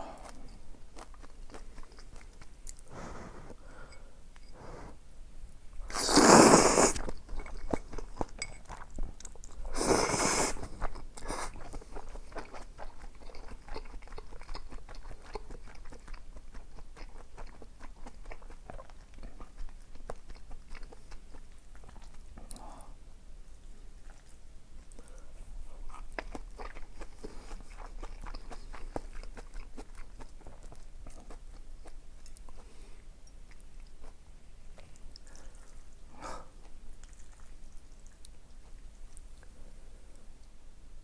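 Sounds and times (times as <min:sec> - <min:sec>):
person chewing: 0:00.0 - 0:03.6, 0:05.9 - 0:22.8, 0:24.0 - 0:39.6
loud eating bursts: 0:05.9 - 0:07.1.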